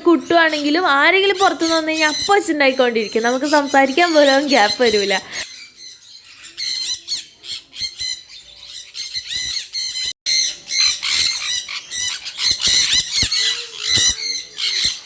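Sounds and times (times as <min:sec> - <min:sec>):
conures screeching: 0:00.0 - 0:15.0.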